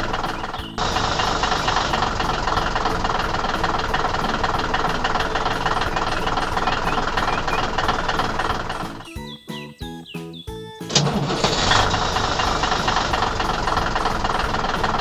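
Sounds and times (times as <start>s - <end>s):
pulsing machine noise: 0.0s - 9.1s, 10.9s - 15.0s.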